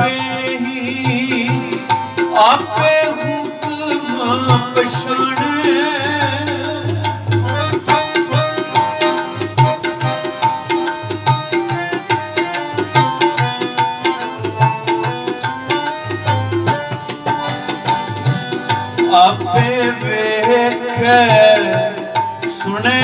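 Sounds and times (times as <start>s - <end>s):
tabla playing steady rhythm: 0.0s - 23.0s
sustained held melody: 5.8s - 21.0s.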